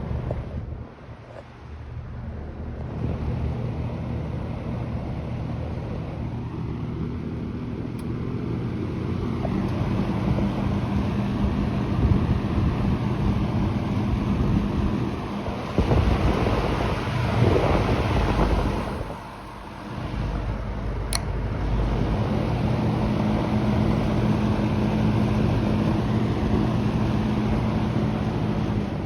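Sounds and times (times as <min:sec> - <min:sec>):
box fan motor hum: 0:00.0 - 0:29.0
air buffeting microphone: 0:09.0 - 0:29.0.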